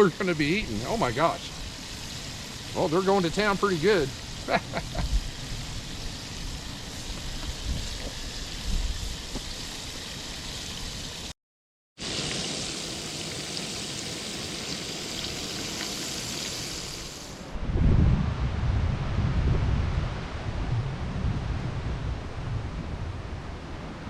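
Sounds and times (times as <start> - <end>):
food sizzling in a pan: 0.0 - 11.4, 12.0 - 17.5
wind rumble on microphone: 4.9 - 9.5, 17.5 - 24.0.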